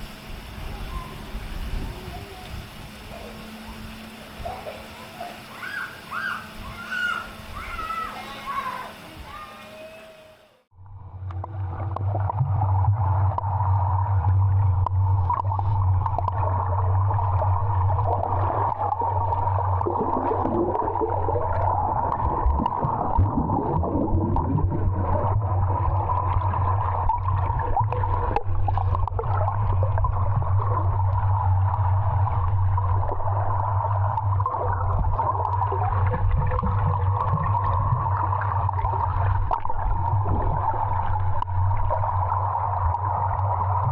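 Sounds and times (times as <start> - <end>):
low underwater hum: 0.0 - 43.9
water gurgling: 0.0 - 43.9
crackling clicks underwater: 11.2 - 43.9.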